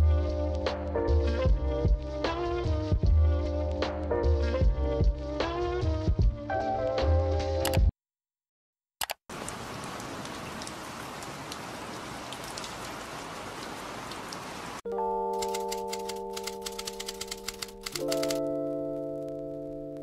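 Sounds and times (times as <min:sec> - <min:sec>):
rain splashing on pavement: 0:09.3 - 0:14.8
music chords: 0:14.9 - 0:20.0
quick clicks: 0:15.4 - 0:18.4.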